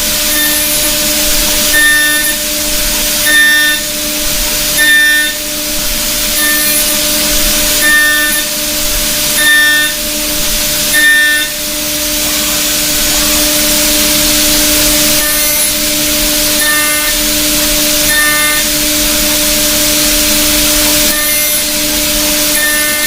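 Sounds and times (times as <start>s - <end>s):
milling machine cutting hiss: 0.0s - 23.0s
spindle hum: 0.0s - 23.0s.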